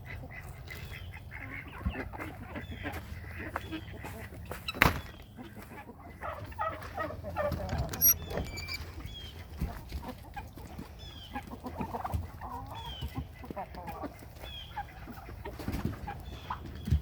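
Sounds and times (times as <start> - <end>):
chickens clucking and cheeping: 0.0 - 17.0
high-pitched squeak: 7.9 - 8.9.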